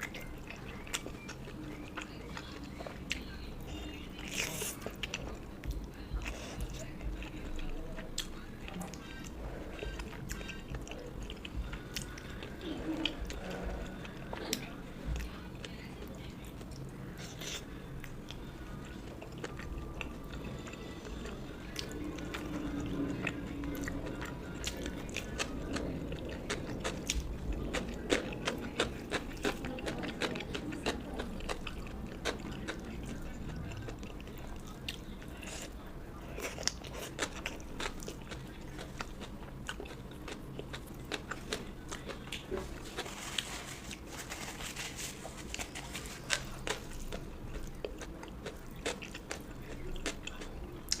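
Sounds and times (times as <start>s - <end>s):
chewing and biting food: 0.0s - 51.0s.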